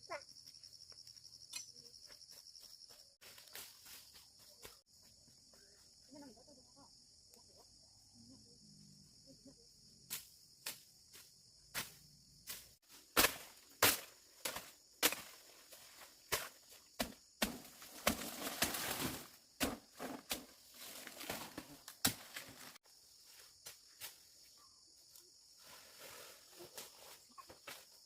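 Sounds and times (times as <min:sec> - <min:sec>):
crickets chirring: 0:00.0 - 0:28.0.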